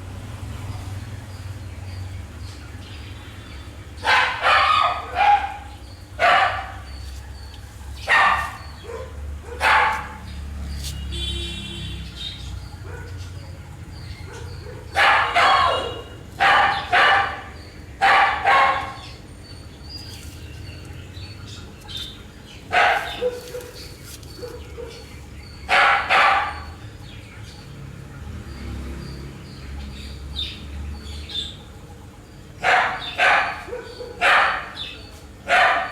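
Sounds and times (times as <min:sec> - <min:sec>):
dog barking: 0:04.0 - 0:07.4, 0:08.0 - 0:10.5, 0:12.8 - 0:13.4, 0:14.2 - 0:19.2, 0:22.7 - 0:26.8, 0:32.6 - 0:35.9.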